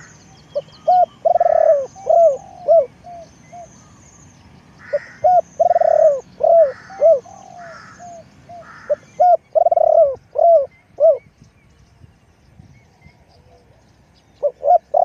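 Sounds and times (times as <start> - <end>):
dove cooing: 0.0 - 4.0, 4.8 - 11.3, 14.4 - 15.0.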